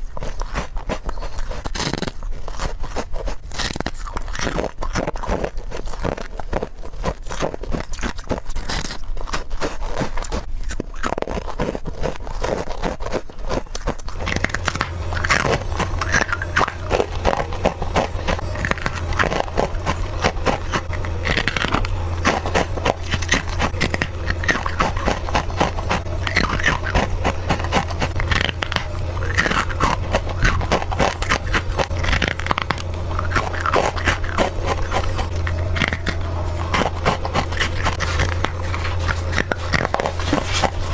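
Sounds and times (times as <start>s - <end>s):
steady low hum: 14.0s - 40.9s.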